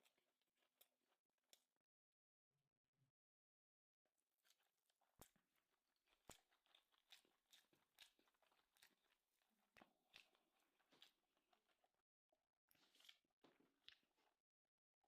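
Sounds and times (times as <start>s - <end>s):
person chewing food: 4.4s - 12.0s, 12.7s - 14.4s.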